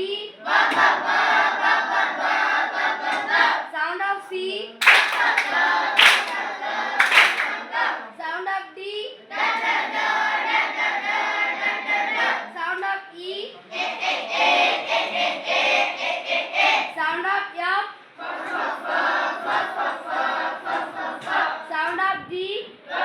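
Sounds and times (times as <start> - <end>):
group of voices singing: 0.4 - 3.6, 18.2 - 21.7.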